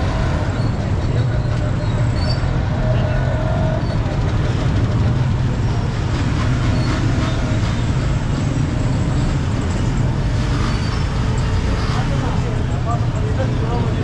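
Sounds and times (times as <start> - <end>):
traffic engines rumbling: 0.0 - 14.0.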